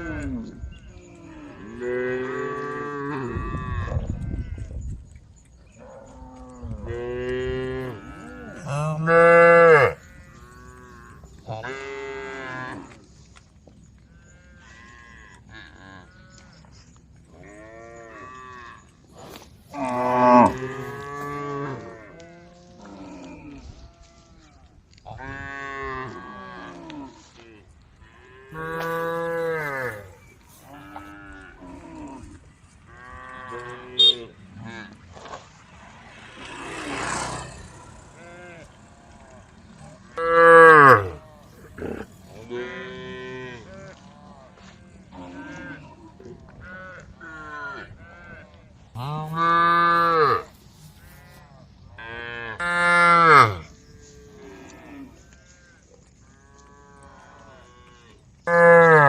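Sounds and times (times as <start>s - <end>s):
cows mooing: 5.7s - 13.0s, 14.1s - 16.6s, 17.3s - 24.4s, 28.0s - 35.4s, 36.4s - 55.8s, 56.4s - 59.0s.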